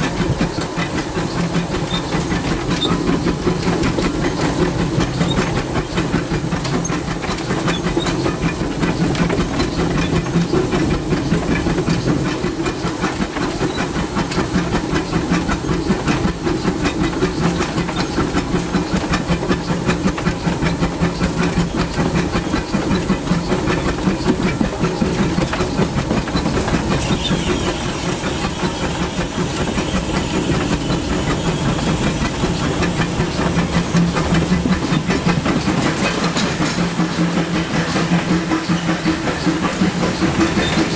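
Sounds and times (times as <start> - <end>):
locomotive wheels clattering: 0.0 - 40.9
steam hissing: 26.9 - 40.9.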